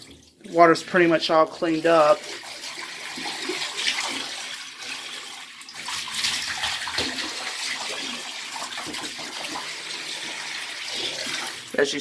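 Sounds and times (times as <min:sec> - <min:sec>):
water running through a hose: 0:00.0 - 0:12.0.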